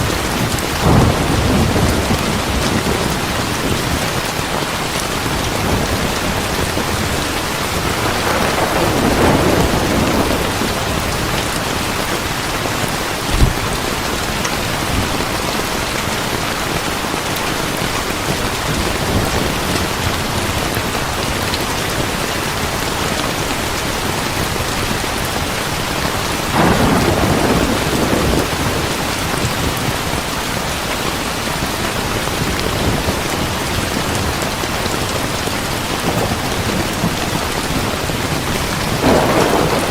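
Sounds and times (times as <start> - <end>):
thunder rolling: 0.0 - 4.5, 5.2 - 15.2, 26.5 - 29.9, 36.0 - 39.9
heavy rain: 0.0 - 39.9.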